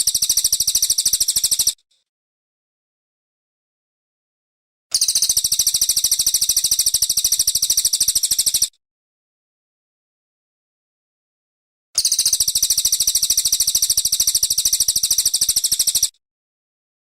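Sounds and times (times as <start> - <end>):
songbird fast high trill: 0.0 - 1.8, 4.9 - 8.7, 12.0 - 16.1.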